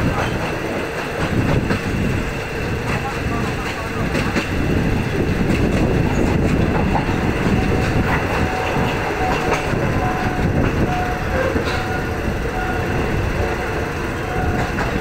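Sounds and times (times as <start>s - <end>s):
train wheels rumbling on rail: 0.0s - 15.0s
wheels clicking over track: 5.2s - 12.1s.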